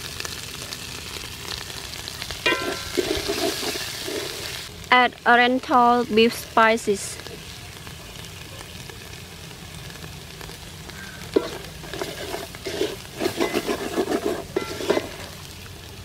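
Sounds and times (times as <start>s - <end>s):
paste sizzling in oil: 0.0s - 16.0s
ladle scraping pot: 11.4s - 15.4s.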